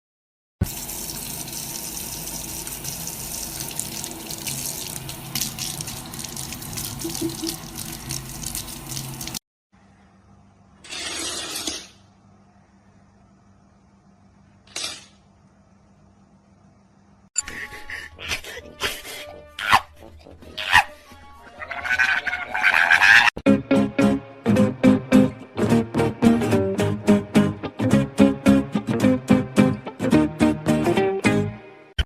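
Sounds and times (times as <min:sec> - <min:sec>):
water running: 0:00.6 - 0:09.4.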